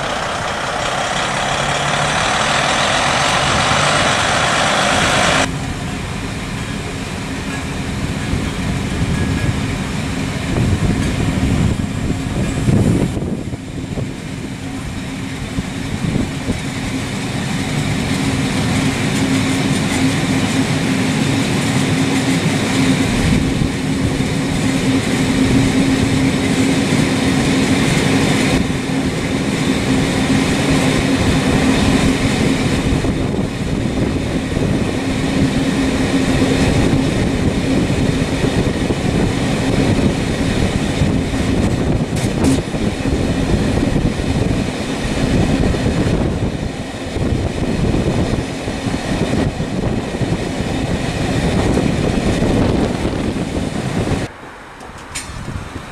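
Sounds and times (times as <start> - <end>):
vehicle engine humming: 0.0 - 55.9.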